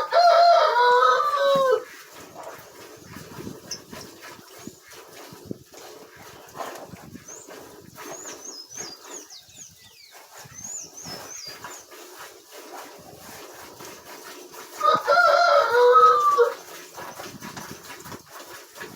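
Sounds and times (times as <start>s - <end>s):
birds chirping: 7.2s - 12.0s.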